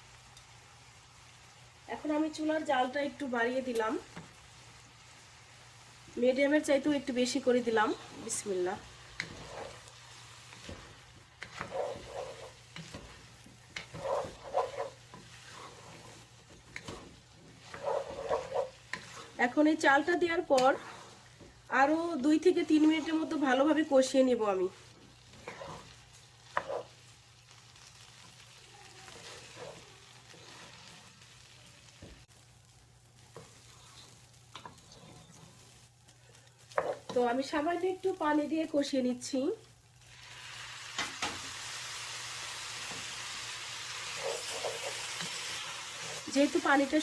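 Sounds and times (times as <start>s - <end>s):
light sizzle: 0.0s - 47.0s
spoon stirring in a pot: 8.0s - 28.4s, 29.1s - 32.2s, 33.2s - 37.3s, 43.9s - 46.6s
spoon stirring and knocking on pot: 10.6s - 19.4s, 25.4s - 27.0s, 36.7s - 37.2s.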